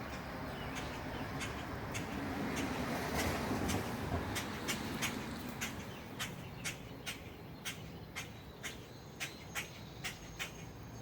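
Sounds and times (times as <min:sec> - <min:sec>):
bird squawking: 0:05.0 - 0:10.7.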